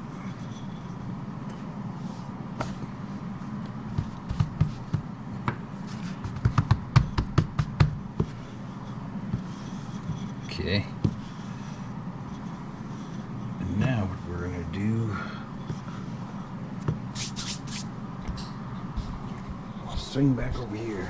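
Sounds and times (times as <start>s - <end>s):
steady low hum: 0.0s - 21.0s
rolling pin thumping dough: 3.7s - 8.4s, 9.2s - 10.2s, 11.0s - 11.4s.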